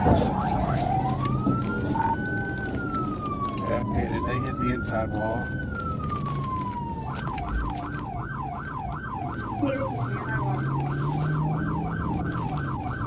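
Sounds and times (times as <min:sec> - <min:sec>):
low vehicle rumble: 0:00.0 - 0:13.0
police siren yelping: 0:00.0 - 0:13.0.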